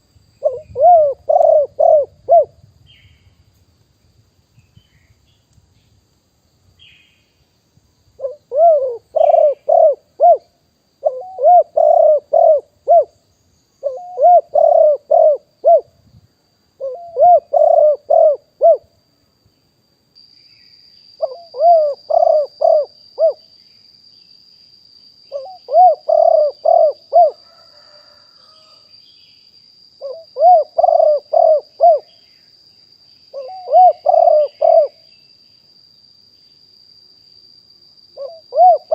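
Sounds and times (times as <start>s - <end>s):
dove cooing: 0.4s - 2.6s, 8.2s - 13.2s, 13.8s - 15.9s, 16.8s - 18.9s, 21.2s - 23.4s, 25.3s - 28.8s, 30.0s - 32.1s, 33.3s - 35.0s, 38.2s - 38.9s.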